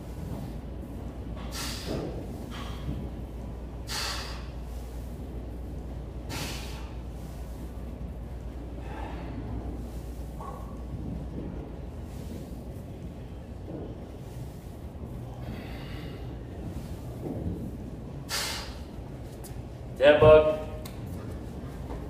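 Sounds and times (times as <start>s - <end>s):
steady low hum: 0.0s - 22.0s
man exhaling sharply: 1.5s - 2.0s, 3.9s - 4.5s, 6.3s - 6.9s, 18.3s - 18.8s.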